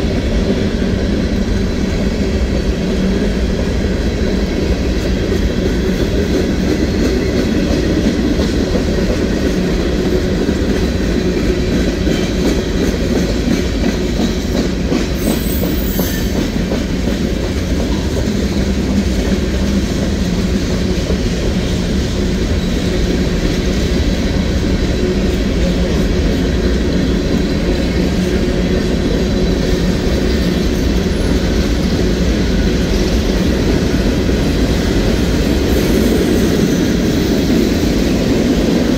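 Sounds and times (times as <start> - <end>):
freight train wheels rumbling on rails: 0.0 - 38.9.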